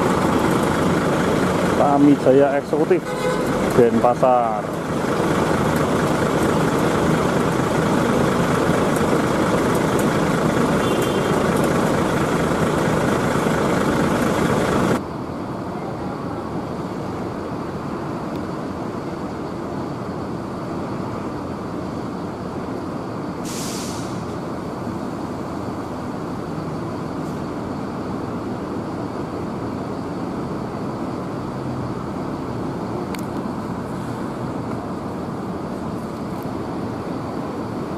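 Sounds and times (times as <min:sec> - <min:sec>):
bus engines and traffic din: 0:00.0 - 0:37.9
air brake hiss: 0:23.4 - 0:24.4.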